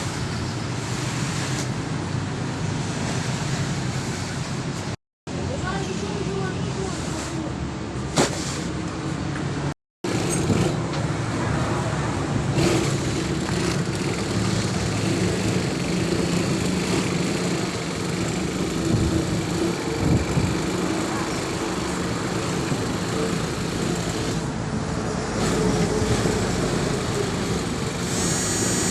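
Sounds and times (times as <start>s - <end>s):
street noise: 0.0s - 28.9s
vehicle engine running: 12.6s - 24.6s.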